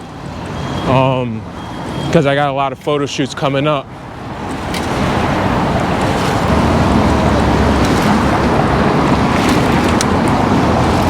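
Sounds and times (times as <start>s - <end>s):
wind buffeting microphone: 3.9s - 11.0s.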